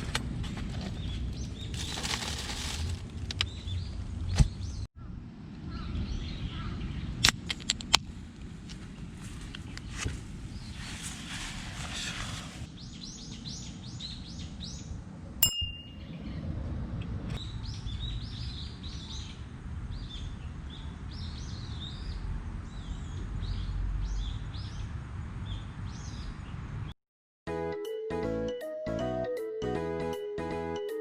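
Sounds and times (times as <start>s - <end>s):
low outdoor rumble: 0.0s - 26.9s
bird chirping: 12.7s - 16.5s
sharp clink: 15.4s - 16.2s.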